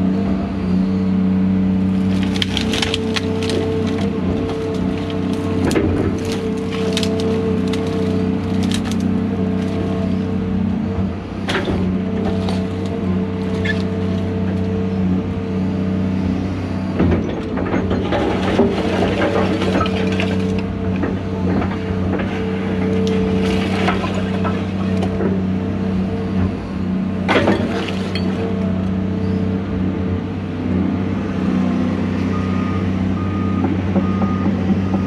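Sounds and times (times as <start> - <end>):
excavator diesel engine running: 0.0 - 35.0
cracking and crashing bursts: 2.0 - 9.9.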